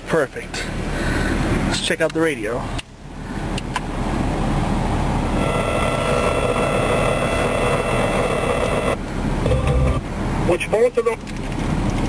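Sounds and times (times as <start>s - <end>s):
air conditioning blower rushing: 3.4s - 10.6s
car radio whine: 4.1s - 11.1s.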